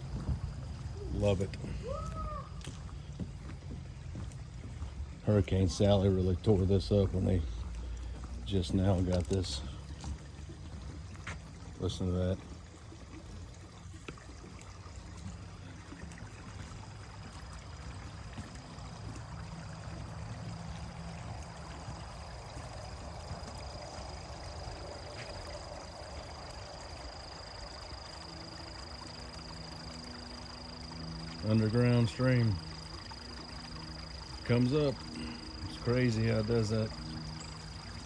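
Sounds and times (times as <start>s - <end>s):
stream water trickling: 0.0s - 38.0s
high-pitched insect drone: 19.4s - 38.0s.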